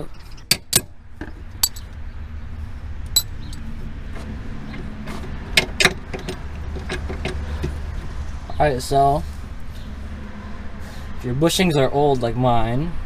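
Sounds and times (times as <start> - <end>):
metallic clinks of tools: 1.6 - 1.9.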